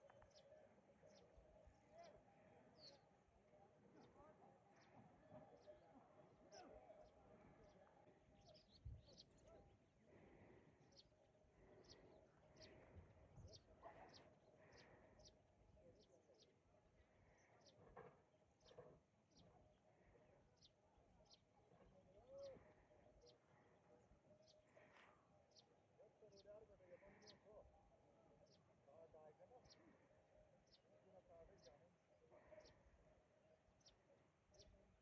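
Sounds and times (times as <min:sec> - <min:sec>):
faint bird chirping: 0:00.0 - 0:35.0.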